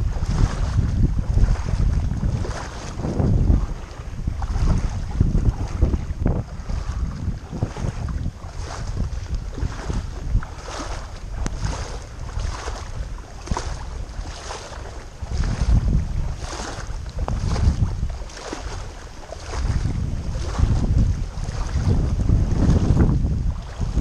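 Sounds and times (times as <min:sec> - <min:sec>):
water sloshing and splashing: 0:00.0 - 0:24.0
wind buffeting microphone: 0:00.0 - 0:24.0.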